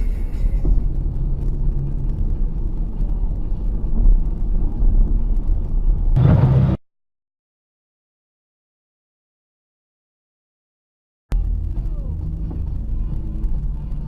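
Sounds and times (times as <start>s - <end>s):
car driving rumble: 0.0s - 6.8s, 11.3s - 14.0s
loud noisy burst: 6.2s - 6.8s.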